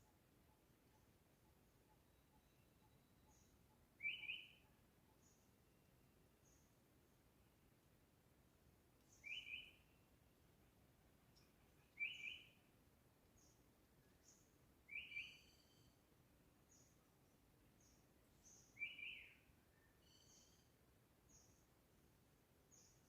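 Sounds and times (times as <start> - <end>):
faint high chirps: 13.4 - 16.0, 17.8 - 21.6.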